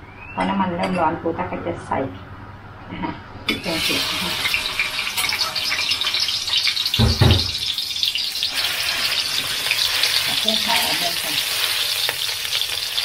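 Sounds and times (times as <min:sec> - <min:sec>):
curry paste sizzling in oil: 0:03.6 - 0:13.0
dull thump: 0:07.0 - 0:07.6.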